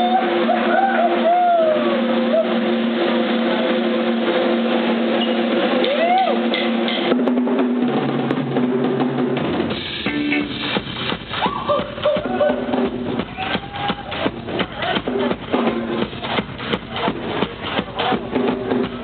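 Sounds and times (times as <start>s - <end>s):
drum kit: 0.0s - 19.0s
live rock band playing: 0.0s - 19.0s.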